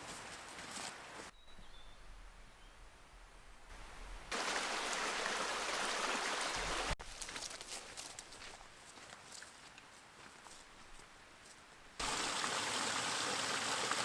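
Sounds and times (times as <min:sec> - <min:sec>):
river water flowing: 0:03.7 - 0:07.0, 0:12.0 - 0:14.0.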